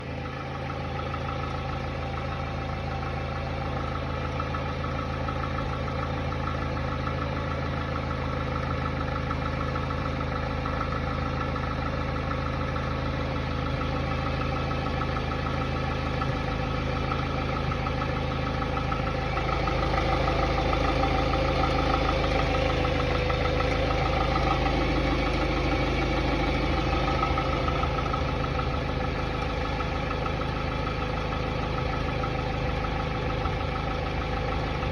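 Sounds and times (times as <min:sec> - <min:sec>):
car engine idling with knock: 0:00.0 - 0:34.9.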